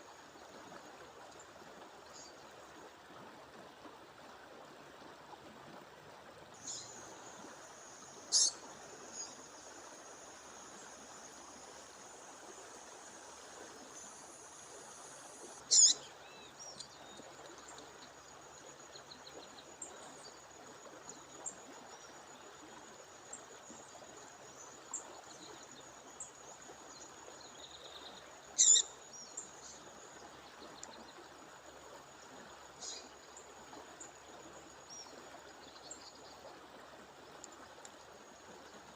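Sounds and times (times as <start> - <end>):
songbird calling: 6.6 - 7.4, 8.1 - 9.6, 15.5 - 17.8, 27.4 - 29.8, 32.8 - 33.2
soft bird chirps: 8.3 - 9.4, 15.6 - 17.8, 27.5 - 29.8.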